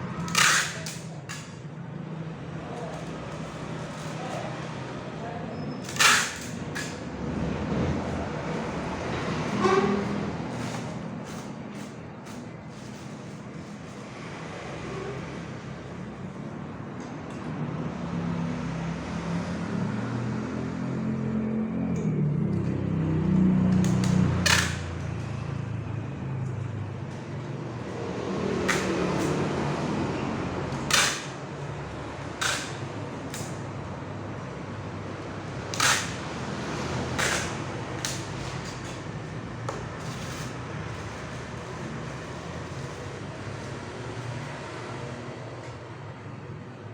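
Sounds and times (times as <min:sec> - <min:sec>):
vehicle engine humming: 0:17.8 - 0:46.9.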